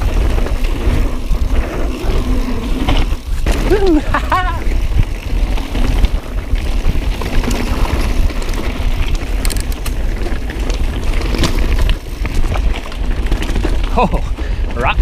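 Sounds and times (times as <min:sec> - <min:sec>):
wind buffeting microphone: 0:00.0 - 0:15.0
bike clattering on rocks: 0:06.7 - 0:14.2.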